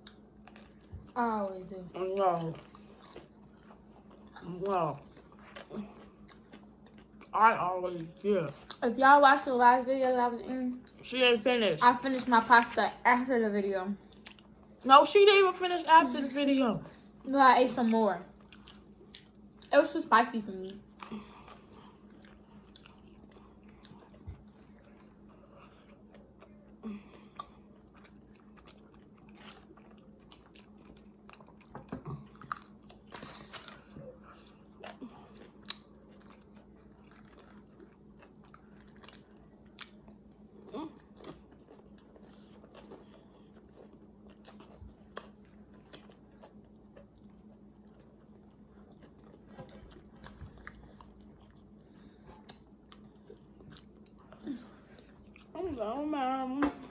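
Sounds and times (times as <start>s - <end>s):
chewing and biting food: 0.0s - 1.2s, 2.0s - 7.4s, 14.1s - 14.8s, 17.9s - 19.7s, 20.6s - 55.6s
steady low hum: 0.0s - 56.9s.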